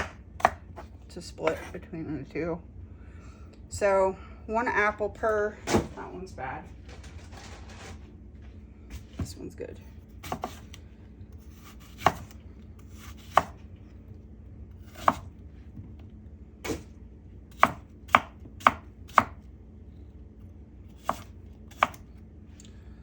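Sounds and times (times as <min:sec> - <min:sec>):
knife chopping on cutting board: 0:00.0 - 0:00.9, 0:01.5 - 0:01.7, 0:10.2 - 0:10.8, 0:11.4 - 0:13.6, 0:14.8 - 0:15.3, 0:16.6 - 0:16.9, 0:17.5 - 0:19.4, 0:20.9 - 0:22.0.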